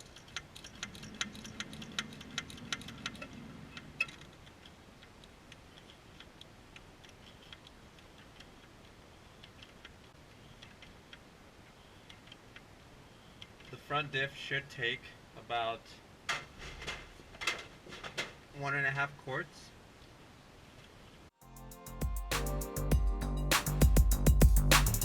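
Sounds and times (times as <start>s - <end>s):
hand pump clicking: 0.0s - 11.2s.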